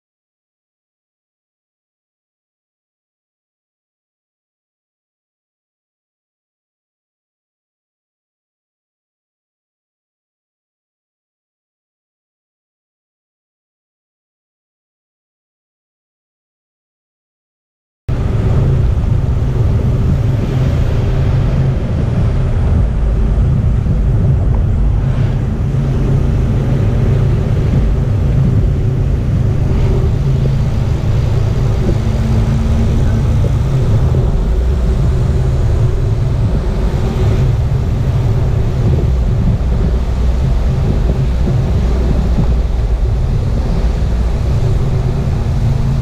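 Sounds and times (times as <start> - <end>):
vehicle engine and road noise: 18.1 - 46.0.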